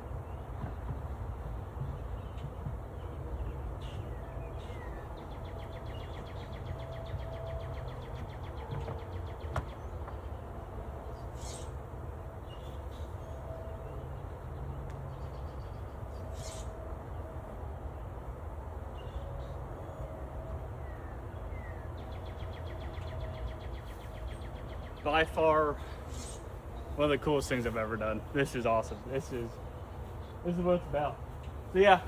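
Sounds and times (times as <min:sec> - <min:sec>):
small bird trilling and chirping: 0:11.4 - 0:11.8, 0:26.1 - 0:26.5
honeybees humming: 0:23.2 - 0:32.0.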